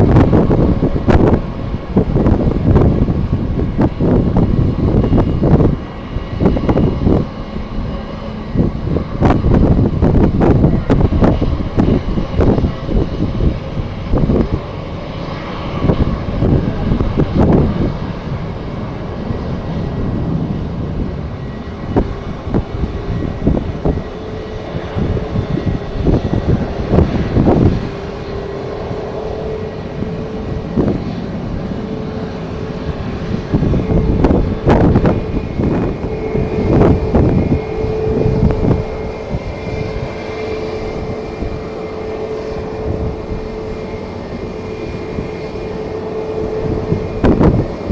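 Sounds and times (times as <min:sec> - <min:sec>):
jet engines running: 0:00.0 - 0:47.9
steady engine whine: 0:00.0 - 0:47.9
wind buffeting microphone: 0:00.0 - 0:47.9.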